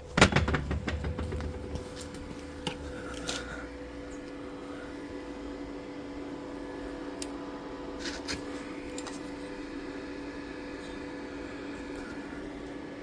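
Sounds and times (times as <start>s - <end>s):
machine hum: 0.0s - 13.0s
light clicks and knocks: 0.1s - 2.8s.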